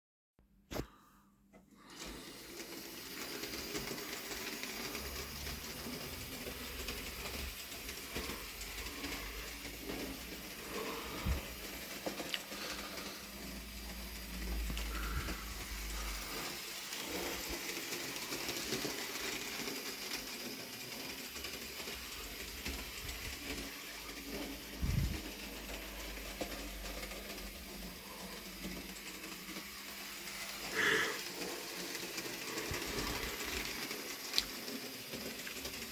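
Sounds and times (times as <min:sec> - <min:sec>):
model train motor whirring: 0:01.7 - 0:35.9.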